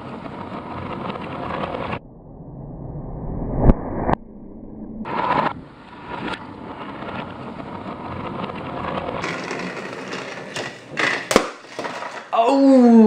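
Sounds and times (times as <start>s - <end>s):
toy train motor running: 9.2s - 11.3s.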